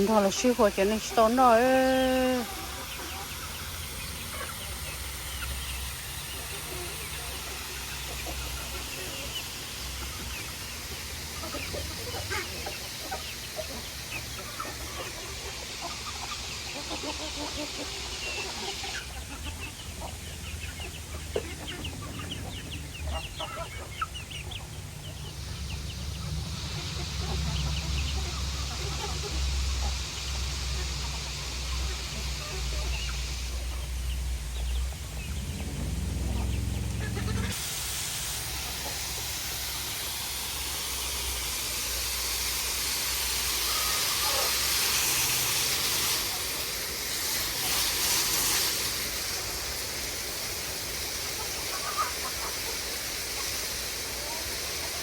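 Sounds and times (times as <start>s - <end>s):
chickens clucking: 0.0s - 55.0s
steady hiss: 0.0s - 55.0s
low rumble: 34.2s - 37.6s.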